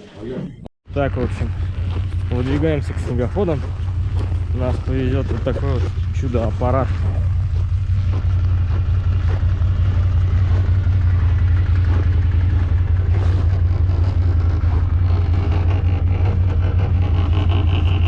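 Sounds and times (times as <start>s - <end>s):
snowmobile engine idling: 0.9s - 18.0s.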